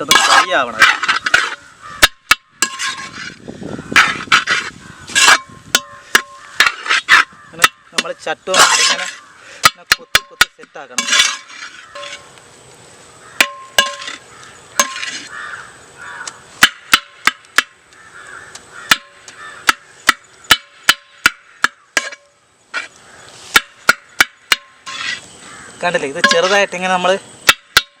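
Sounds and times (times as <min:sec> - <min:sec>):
spatula striking frying pan: 0:13.4 - 0:14.2, 0:16.6 - 0:17.8, 0:18.9 - 0:22.3, 0:23.5 - 0:25.0, 0:27.5 - 0:28.0.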